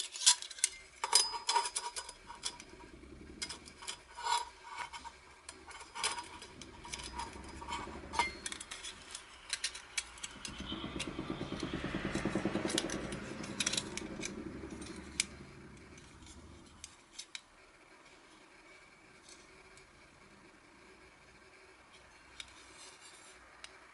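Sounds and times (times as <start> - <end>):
metal parts clinking: 0.0 - 10.6
low rumble: 2.1 - 17.0.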